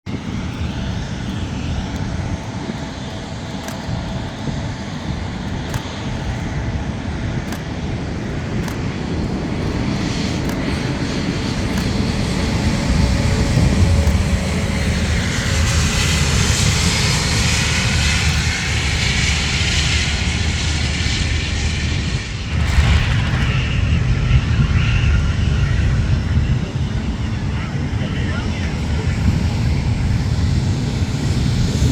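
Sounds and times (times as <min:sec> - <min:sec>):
jet engines running: 0:00.0 - 0:31.9.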